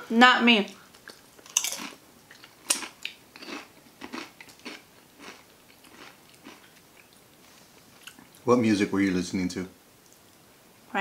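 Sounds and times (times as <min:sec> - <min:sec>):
chewing crunches: 0:00.9 - 0:08.4.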